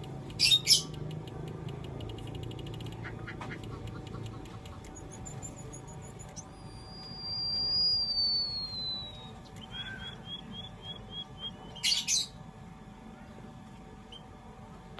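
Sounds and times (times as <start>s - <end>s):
short bird chirps: 5.0s - 12.1s
bird whistle sliding downward: 6.4s - 11.6s.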